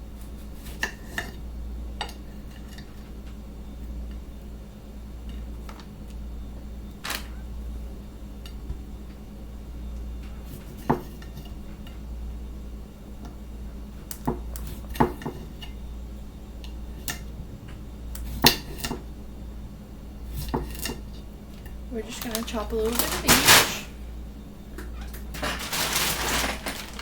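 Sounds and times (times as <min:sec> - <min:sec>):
steady low hum: 0:00.0 - 0:27.0
utensils and dishes clinking: 0:22.0 - 0:23.9, 0:24.9 - 0:27.0.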